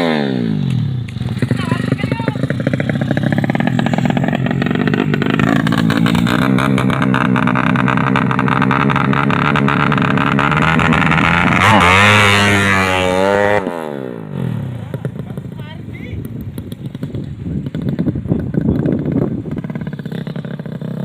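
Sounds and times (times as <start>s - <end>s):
motorcycle engine revving roughly: 0.0s - 21.0s.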